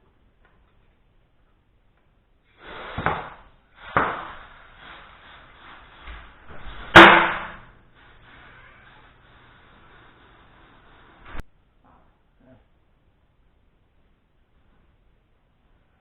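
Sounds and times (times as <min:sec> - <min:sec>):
sharp knocks and clatters: 0:06.5 - 0:07.8.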